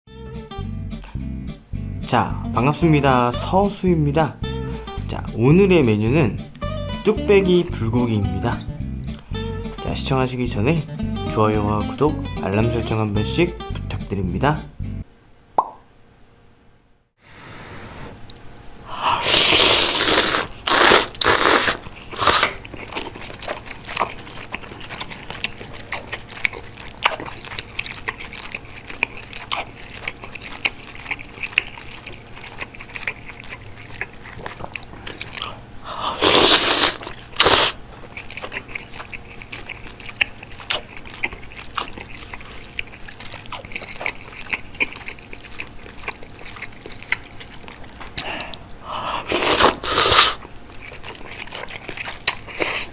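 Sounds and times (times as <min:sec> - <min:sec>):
chewing and biting: 0:19.4 - 0:52.9.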